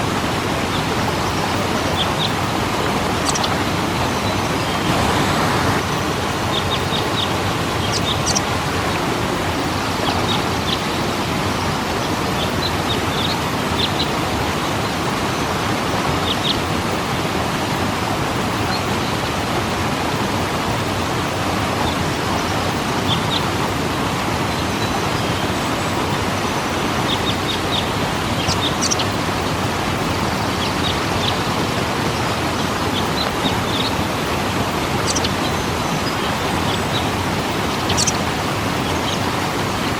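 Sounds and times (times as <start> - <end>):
waterfall roaring: 0.0 - 39.9
high bird chirps: 3.2 - 3.6, 6.5 - 11.8, 36.7 - 39.3.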